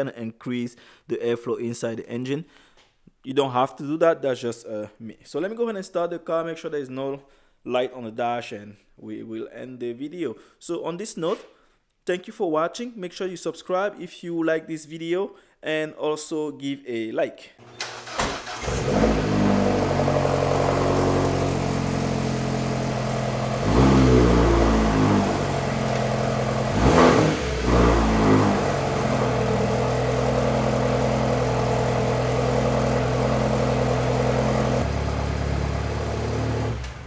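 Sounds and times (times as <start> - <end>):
car engine idling and revving: 17.8 - 37.0.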